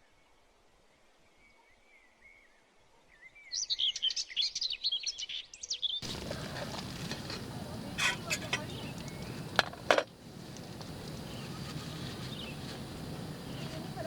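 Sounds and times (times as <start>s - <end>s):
songbird chirps and trills: 3.4s - 14.0s
steady rushing noise: 6.0s - 14.0s.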